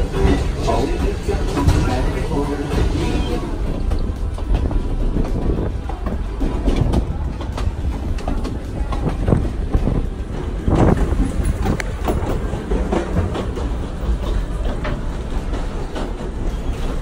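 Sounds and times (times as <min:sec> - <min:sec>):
train wheels clacking: 0:00.0 - 0:17.0
train wheels rumbling on rail: 0:00.0 - 0:17.0.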